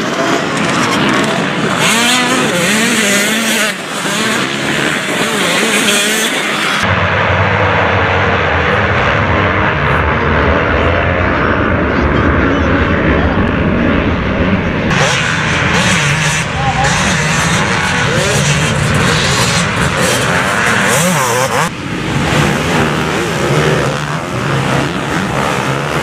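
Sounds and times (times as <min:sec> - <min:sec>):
motocross engines revving: 0:00.0 - 0:26.0
deep steady engine noise: 0:06.4 - 0:26.0.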